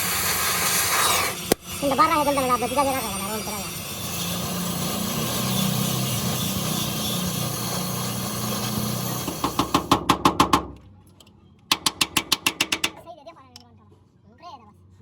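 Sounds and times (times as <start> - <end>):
rapid hammer blows on sheet metal: 1.5 - 10.7.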